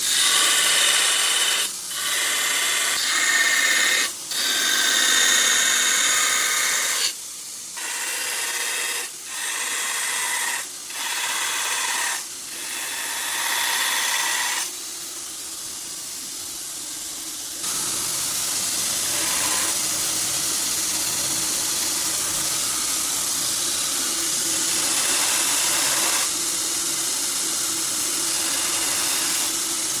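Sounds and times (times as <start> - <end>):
belt grinder motor hum: 0.0 - 7.1, 17.6 - 20.0, 21.3 - 26.4, 28.2 - 29.7
grinding hiss: 0.0 - 30.0.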